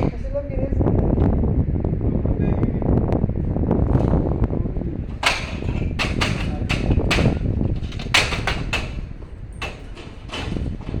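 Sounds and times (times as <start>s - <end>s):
wind rumble on microphone: 0.0s - 11.0s
sharp knocks and clicks: 5.1s - 11.0s.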